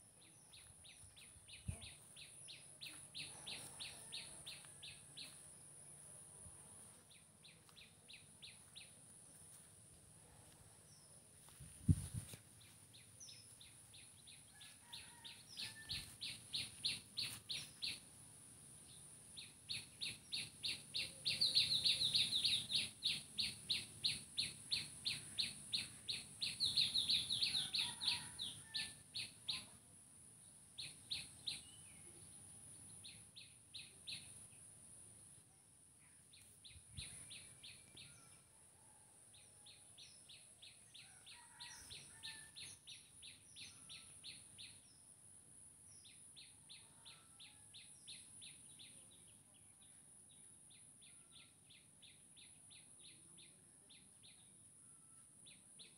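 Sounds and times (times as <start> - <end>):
steady high-pitched hiss: 0.0 - 27.6.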